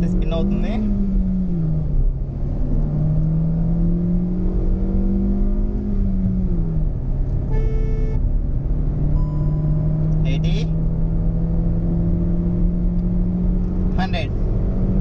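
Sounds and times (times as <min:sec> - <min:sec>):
car engine accelerating hard: 0:00.0 - 0:07.5, 0:08.3 - 0:15.0
short tone: 0:07.5 - 0:08.2, 0:09.2 - 0:09.9.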